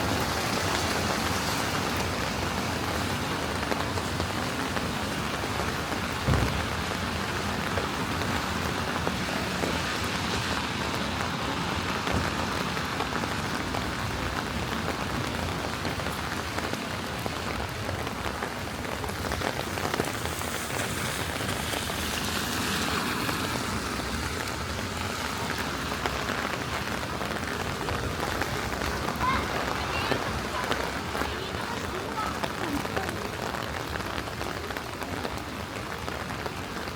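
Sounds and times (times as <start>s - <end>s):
rain on a wet street: 0.0s - 36.9s
short knock: 6.3s - 6.8s.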